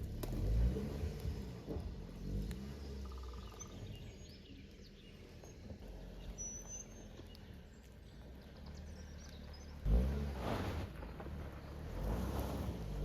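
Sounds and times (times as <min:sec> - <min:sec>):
faint bird chirps: 0:01.3 - 0:09.9.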